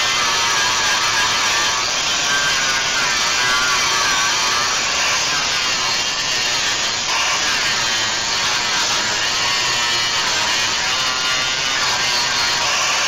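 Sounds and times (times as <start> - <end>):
power tool running under load: 0.0 - 13.0.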